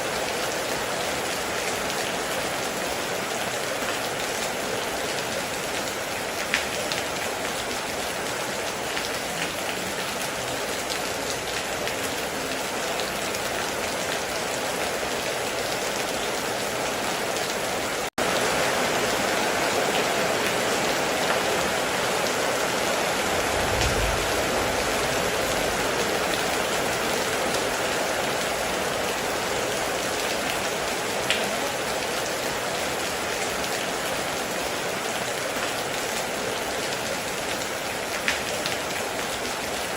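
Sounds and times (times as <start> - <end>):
heavy rain hissing: 0.0 - 39.9
short deep rumble: 23.4 - 25.6.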